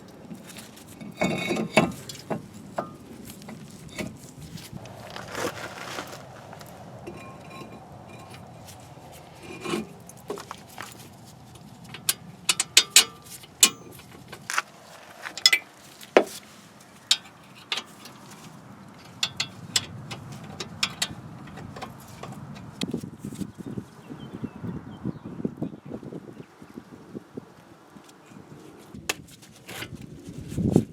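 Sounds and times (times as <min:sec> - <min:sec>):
metal tools clicking and clinking: 0:11.9 - 0:14.5.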